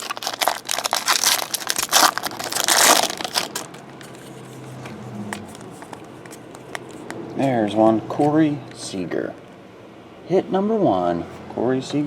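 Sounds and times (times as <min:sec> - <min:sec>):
foil wrapper crinkling: 0:00.0 - 0:04.7, 0:05.4 - 0:07.1.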